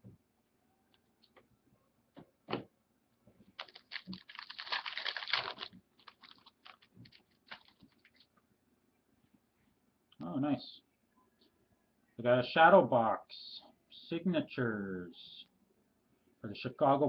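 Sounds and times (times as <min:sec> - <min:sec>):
cards clicking and rustling: 0:03.6 - 0:08.3
foil pack crinkling: 0:03.6 - 0:08.3.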